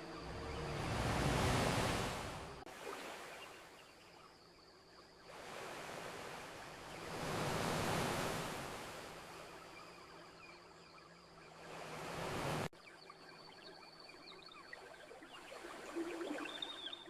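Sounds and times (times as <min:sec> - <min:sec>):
waves washing onto shore: 0:00.0 - 0:03.7, 0:05.3 - 0:09.6, 0:11.6 - 0:12.7.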